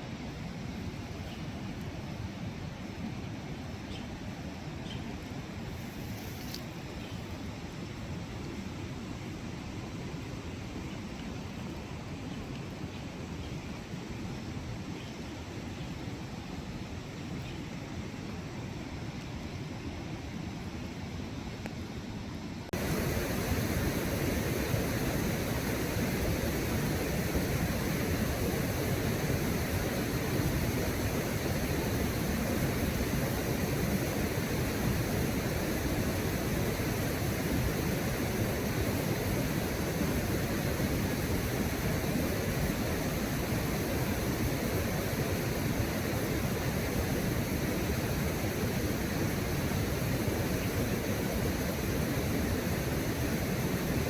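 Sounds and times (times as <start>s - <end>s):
rushing river water: 22.8s - 54.0s.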